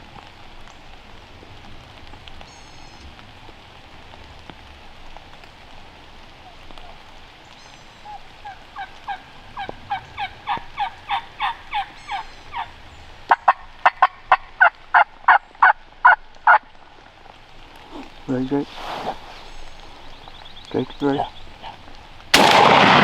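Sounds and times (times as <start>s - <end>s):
rain hissing: 0.0s - 23.0s
turkey yelping: 8.4s - 12.7s, 13.3s - 16.6s.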